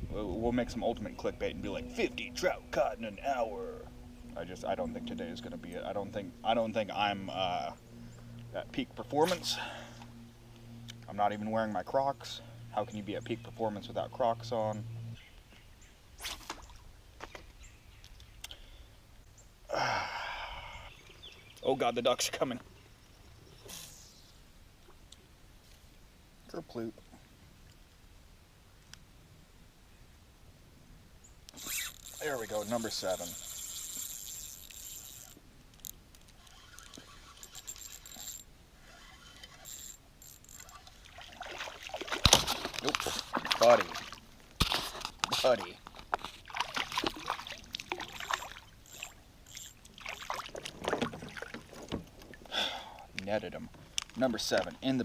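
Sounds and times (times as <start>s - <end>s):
faint clicks: 17.2s - 18.6s
man exhaling loudly: 19.7s - 20.9s
rustle: 22.3s - 55.0s
fishing reel clicking and rattling: 31.5s - 41.0s, 48.0s - 50.4s.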